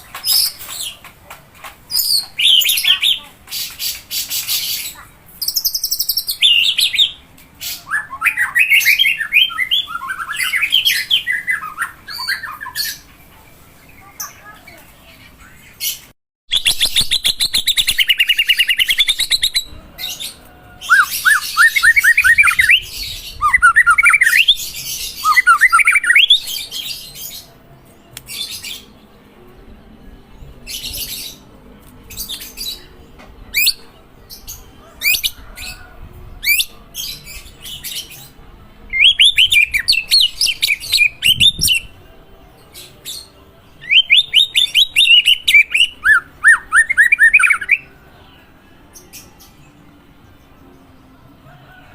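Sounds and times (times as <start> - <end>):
bird singing: 16.5 - 27.4, 43.2 - 48.0.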